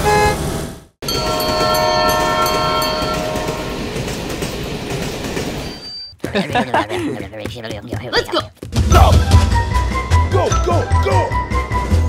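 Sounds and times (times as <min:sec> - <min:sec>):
running train rumble: 0:00.4 - 0:06.9
train horn chord: 0:01.0 - 0:04.0.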